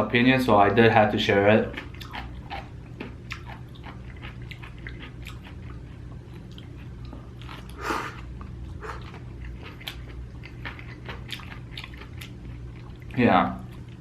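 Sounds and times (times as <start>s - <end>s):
chewing and biting food: 1.6s - 14.0s.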